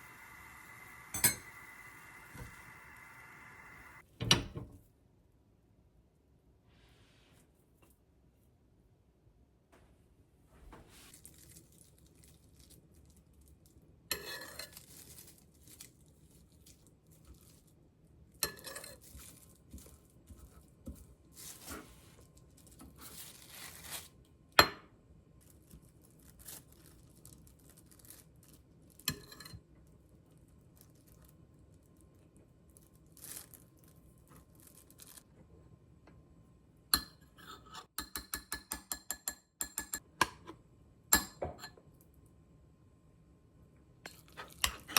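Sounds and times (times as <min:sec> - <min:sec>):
dishes and utensils clinking: 0:00.8 - 0:02.6, 0:18.4 - 0:19.1.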